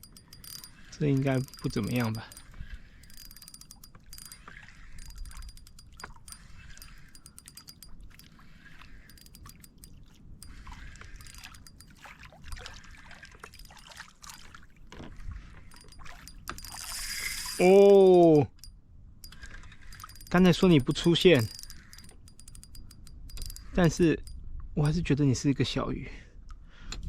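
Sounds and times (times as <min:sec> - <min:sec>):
fishing reel clicking: 0:00.0 - 0:12.0, 0:15.6 - 0:25.0.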